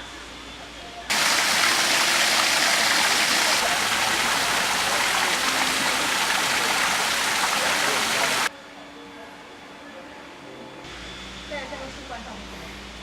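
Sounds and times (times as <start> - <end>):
water rushing: 1.1 - 8.5.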